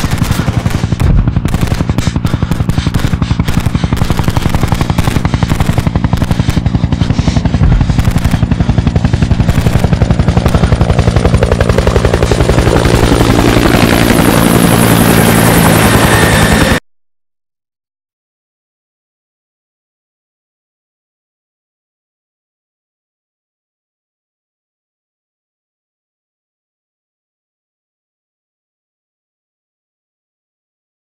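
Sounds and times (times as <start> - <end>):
helicopter engine drone: 0.0 - 16.8
helicopter rotor beating: 0.0 - 16.8.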